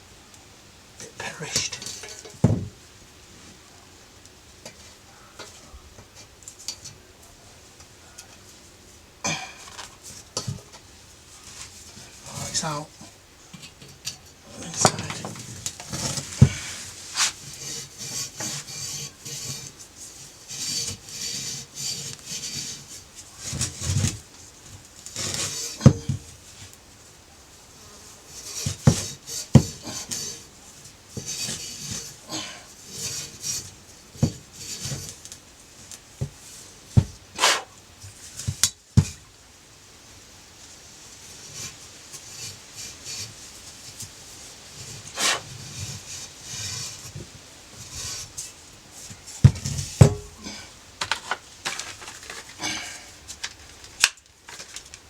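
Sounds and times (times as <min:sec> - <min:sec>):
metal tools clinking and scraping: 0:01.5 - 0:02.4, 0:13.6 - 0:19.8.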